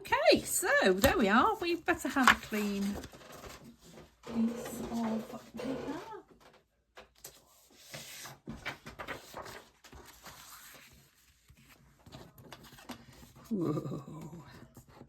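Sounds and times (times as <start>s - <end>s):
paper rustling: 0.3s - 13.5s.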